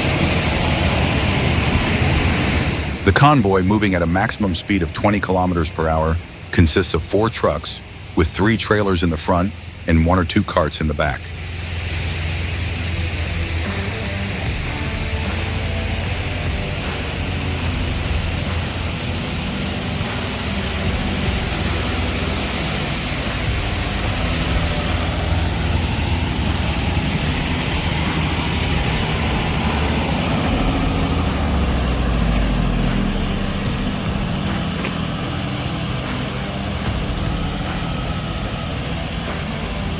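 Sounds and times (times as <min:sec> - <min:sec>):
diesel truck engines rumbling: 0:00.0 - 0:39.9
short sharp hiss: 0:32.2 - 0:33.6.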